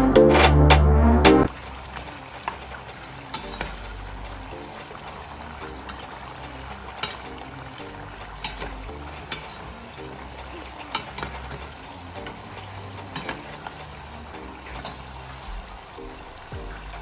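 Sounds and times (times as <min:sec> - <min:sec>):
fries sizzling in hot oil: 0:01.5 - 0:17.0
tongs clicking against a pan: 0:06.9 - 0:07.5, 0:08.4 - 0:13.9, 0:14.6 - 0:15.1.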